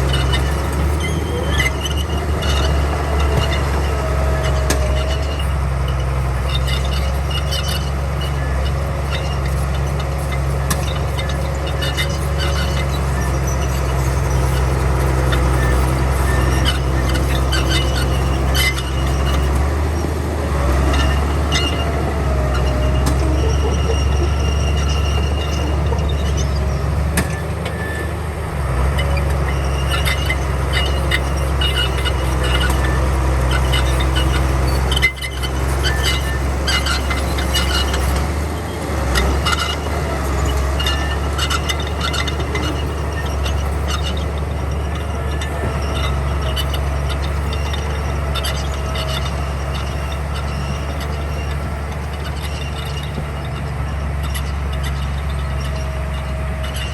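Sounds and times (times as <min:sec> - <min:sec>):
bulldozer diesel engine running: 0:00.0 - 0:56.9
metal clanks and squeals: 0:00.0 - 0:56.9.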